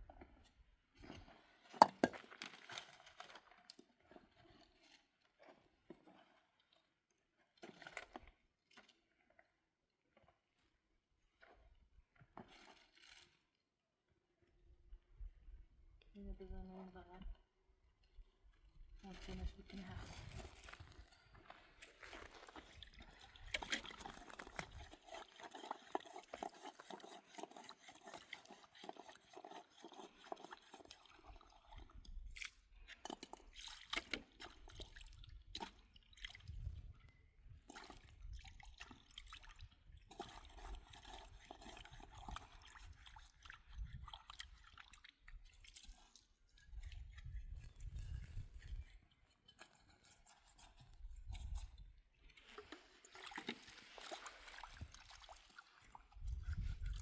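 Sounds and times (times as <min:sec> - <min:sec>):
water sloshing and dripping: 0:19.8 - 0:57.0.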